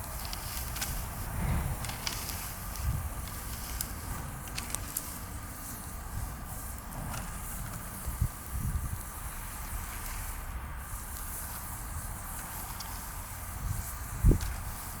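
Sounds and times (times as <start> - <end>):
bonfire hissing and crackling: 0.0 - 15.0.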